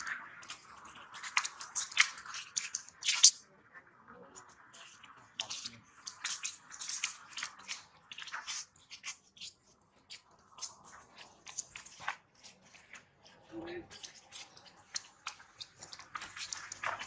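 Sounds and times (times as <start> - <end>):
monkey crunching food: 10.5 - 17.0.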